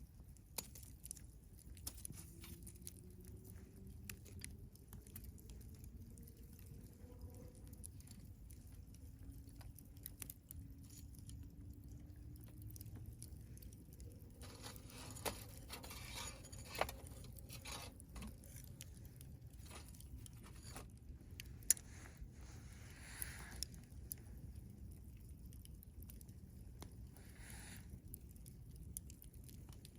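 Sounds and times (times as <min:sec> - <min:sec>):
campfire crackling and popping: 0:00.0 - 0:29.9
fire hissing: 0:21.7 - 0:24.7, 0:27.0 - 0:28.2.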